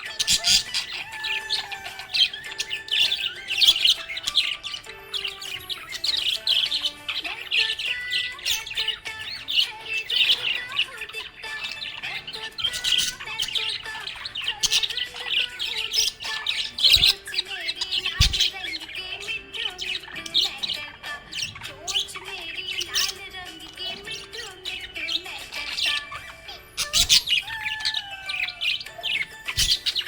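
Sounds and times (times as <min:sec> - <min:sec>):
budgerigar chirping and warbling: 0:00.0 - 0:30.0.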